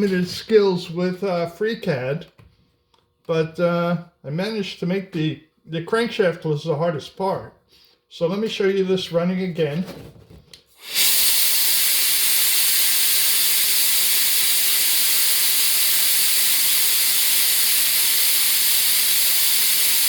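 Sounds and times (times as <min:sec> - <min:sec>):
air duster hissing: 0:10.7 - 0:20.0.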